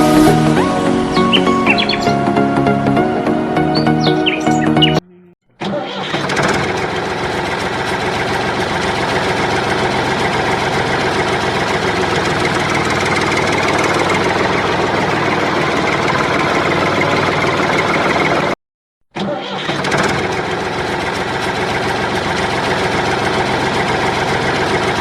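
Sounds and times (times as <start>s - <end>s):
motor running: 0.0s - 2.6s, 6.2s - 18.5s.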